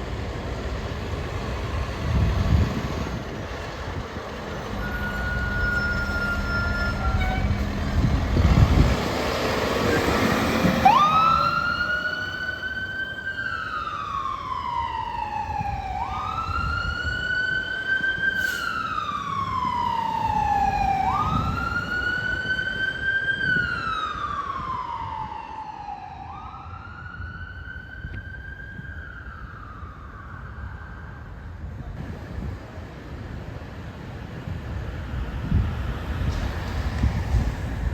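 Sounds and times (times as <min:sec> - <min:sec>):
vehicle engine noise: 0:00.0 - 0:19.4, 0:31.4 - 0:37.9
emergency vehicle siren wailing: 0:00.8 - 0:31.8.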